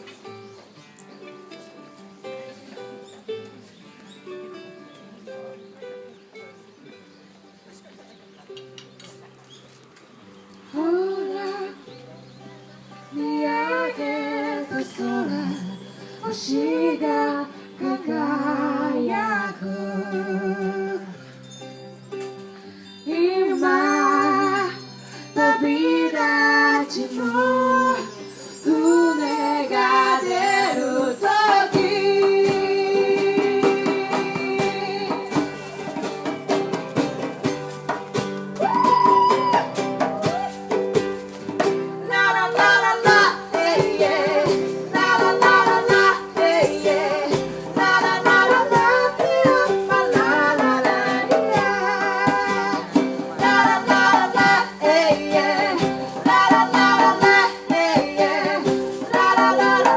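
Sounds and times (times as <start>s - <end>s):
plucked string instruments: 11.3s - 59.9s
person singing: 13.2s - 21.2s, 23.1s - 35.5s, 42.1s - 59.9s.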